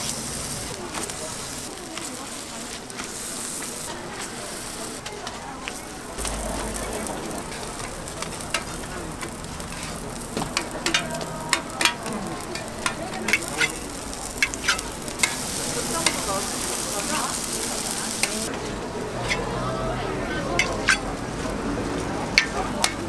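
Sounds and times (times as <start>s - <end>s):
pancakes sizzling in oil: 0.0s - 23.0s
sharp clicks and ticks: 6.2s - 16.5s.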